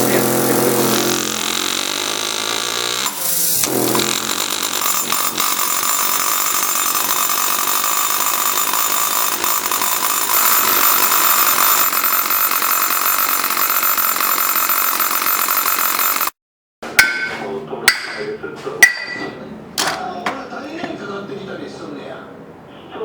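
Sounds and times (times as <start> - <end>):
power tool on metal: 0.0 - 16.4.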